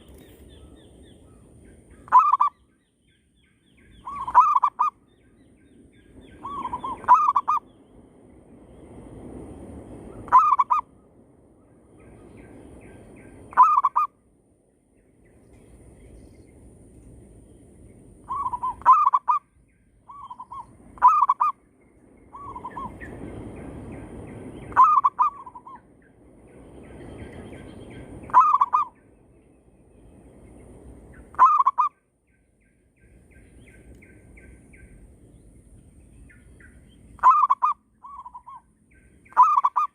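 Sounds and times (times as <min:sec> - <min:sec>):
soft rushing noise: 0:07.6 - 0:13.5.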